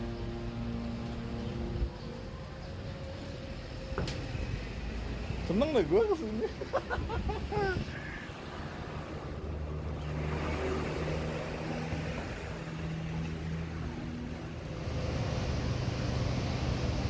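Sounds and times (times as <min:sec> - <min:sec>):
wind: 0:00.0 - 0:17.0
water noise: 0:06.8 - 0:17.0
motor engine droning: 0:08.7 - 0:17.0.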